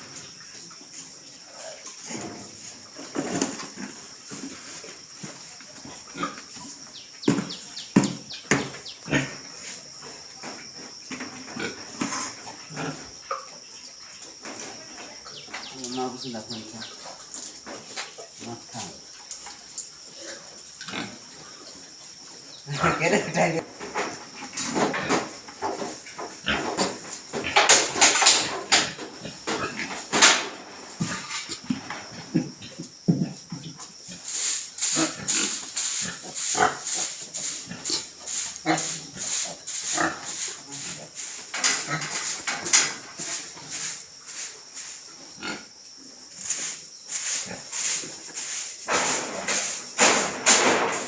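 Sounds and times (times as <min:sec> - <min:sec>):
steady high hiss: 0:00.0 - 0:51.0
pigs grunting and squealing: 0:08.6 - 0:09.5, 0:22.6 - 0:23.6, 0:31.0 - 0:43.0.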